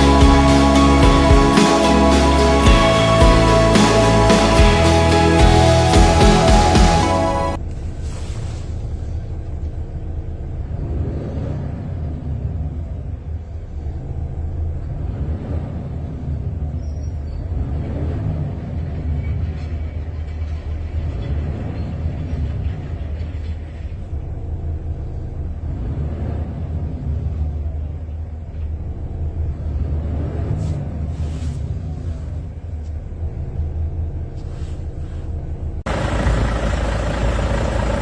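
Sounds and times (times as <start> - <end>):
truck diesel engine running: 0.0 - 8.0, 35.8 - 38.0.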